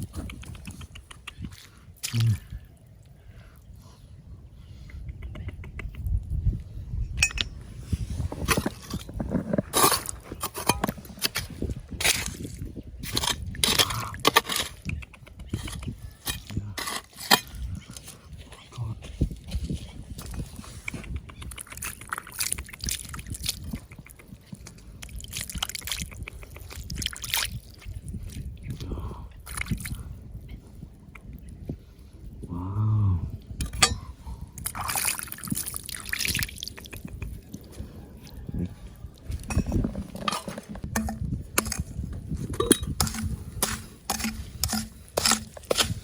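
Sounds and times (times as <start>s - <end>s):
rocks and gravel clinking and scraping: 7.1s - 15.0s, 15.6s - 18.8s, 39.2s - 46.0s
water sloshing and splashing: 34.6s - 36.8s.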